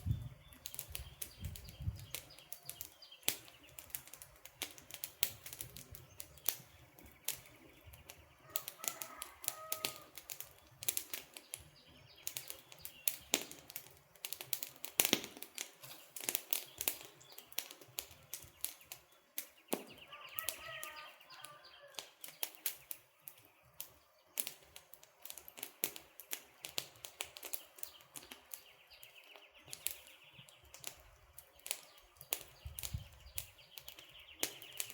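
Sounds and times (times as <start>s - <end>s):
bird chirps: 0.0s - 3.9s, 15.8s - 24.2s, 27.6s - 30.8s, 31.4s - 34.9s
campfire crackling and popping: 0.0s - 34.9s.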